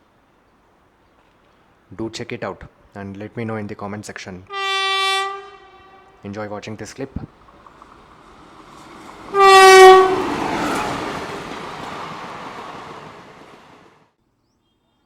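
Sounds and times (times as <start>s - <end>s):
train horn blast: 4.5s - 6.4s, 9.2s - 11.4s
train running noise: 5.2s - 14.1s.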